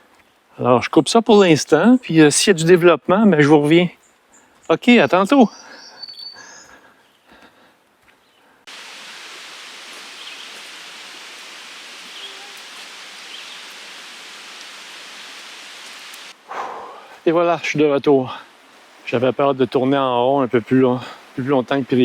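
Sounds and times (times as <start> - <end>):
outdoor hiss: 8.6 - 22.0.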